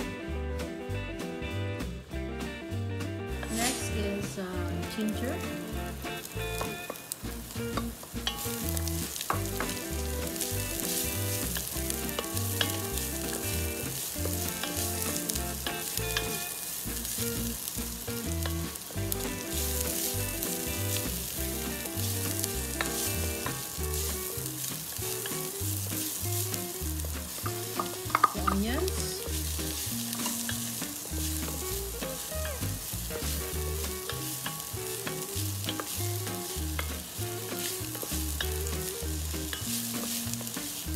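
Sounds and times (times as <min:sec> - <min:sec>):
background music with bass line: 0:00.0 - 0:40.9
ginger sizzling in hot oil: 0:00.0 - 0:40.9
wooden spoon scraping pot: 0:03.4 - 0:40.9.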